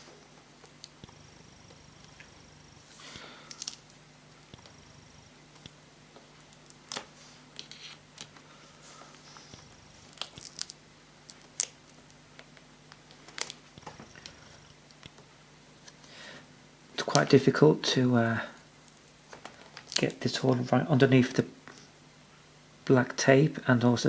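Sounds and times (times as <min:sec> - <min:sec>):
faint steady hum: 0:00.0 - 0:24.0
crinkling rustles of tape: 0:05.6 - 0:16.1, 0:18.4 - 0:20.8.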